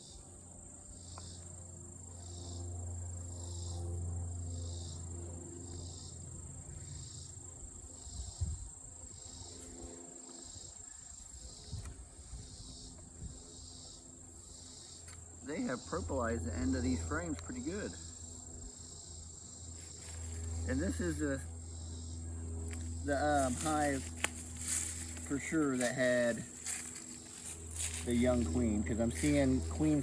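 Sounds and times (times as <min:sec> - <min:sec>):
bee hive hum: 0:00.0 - 0:30.0
insects chirping: 0:00.0 - 0:30.0.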